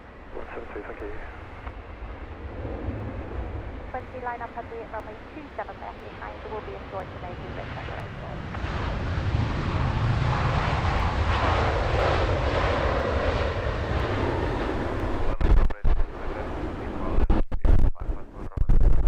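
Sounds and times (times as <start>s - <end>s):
jet engine roar: 0.0s - 18.6s.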